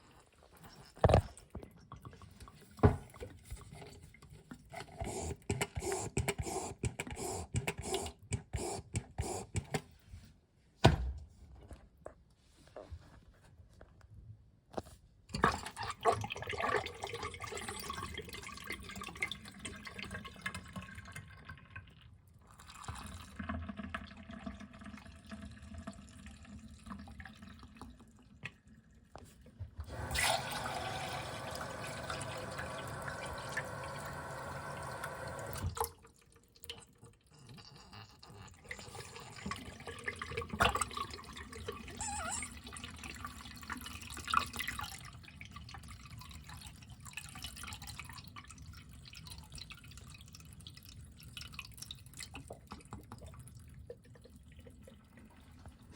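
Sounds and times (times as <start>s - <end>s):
toilet flushing: 4.9s - 9.6s, 15.5s - 21.9s, 22.5s - 28.1s, 29.8s - 36.7s, 38.3s - 46.5s
tank refilling: 29.9s - 36.1s.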